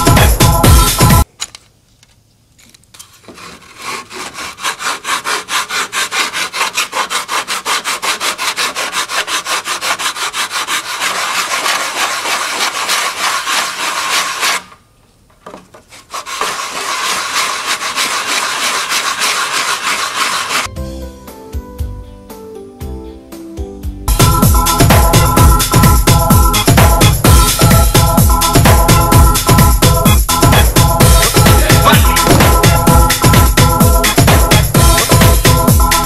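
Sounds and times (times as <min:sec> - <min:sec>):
sanding block rasping strokes: 0:03.2 - 0:14.7, 0:15.9 - 0:20.7, 0:31.3 - 0:33.4.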